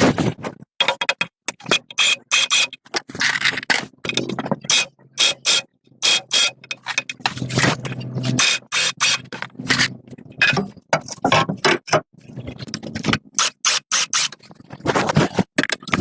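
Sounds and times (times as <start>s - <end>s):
hand tool scraping metal: 4.7s - 10.7s.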